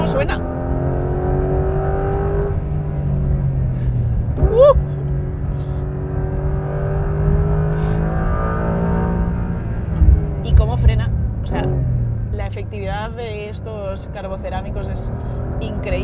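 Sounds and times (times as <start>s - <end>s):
car engine accelerating: 0.0s - 16.0s
person exclaiming: 4.4s - 5.0s.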